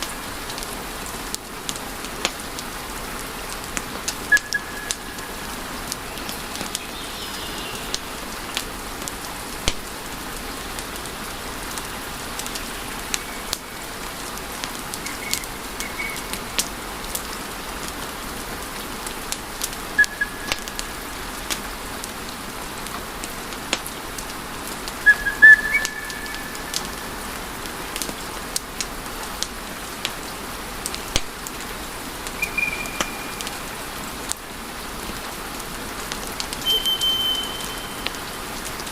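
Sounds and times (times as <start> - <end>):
fire popping and snapping: 1.3 - 2.7, 7.9 - 10.0, 22.8 - 27.0, 27.6 - 33.5
high whistles from burning logs: 4.3 - 8.0, 12.4 - 14.0, 15.0 - 16.8, 20.0 - 21.6, 25.0 - 27.3, 32.2 - 34.1, 36.6 - 38.6.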